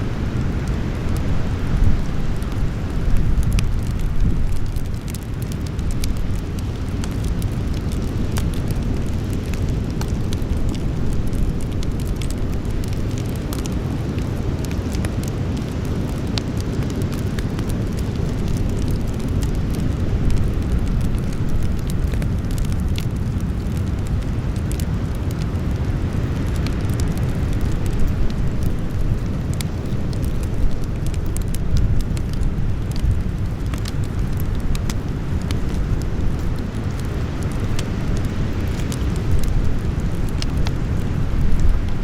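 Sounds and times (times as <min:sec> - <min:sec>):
campfire crackling: 0:00.0 - 0:42.0.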